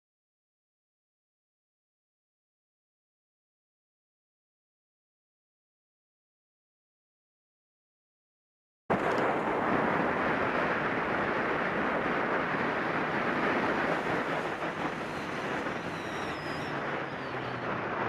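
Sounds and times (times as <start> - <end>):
vehicle road and wind noise: 8.9 - 18.0
faint high falling whistle: 15.1 - 17.6.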